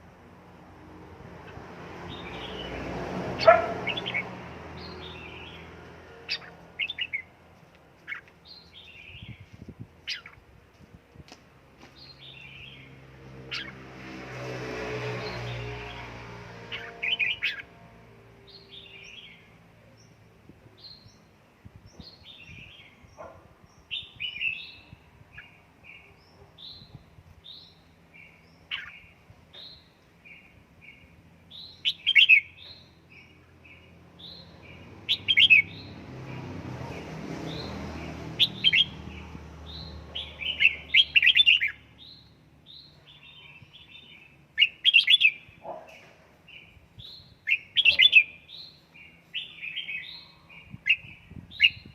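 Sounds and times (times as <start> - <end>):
bird chirping and singing: 3.4 - 7.3, 8.0 - 10.4, 12.0 - 13.8, 16.7 - 17.8, 18.5 - 20.2, 20.8 - 36.0, 37.5 - 45.8, 46.5 - 51.9.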